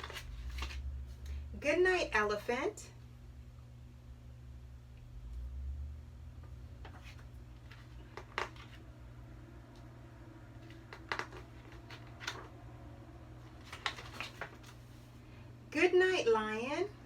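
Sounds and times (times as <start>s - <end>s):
paper pages rustling: 0.0s - 1.2s, 6.8s - 8.8s, 10.6s - 12.5s, 13.4s - 15.2s.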